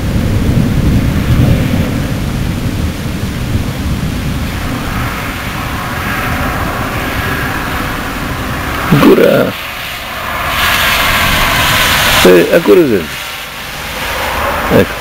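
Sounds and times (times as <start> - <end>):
fireworks rumble: 0.0 - 15.0
rising hiss: 4.4 - 15.0.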